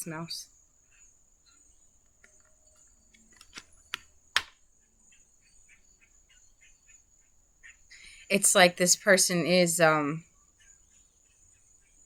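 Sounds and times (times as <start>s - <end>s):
sharp clicks: 2.0s - 4.6s.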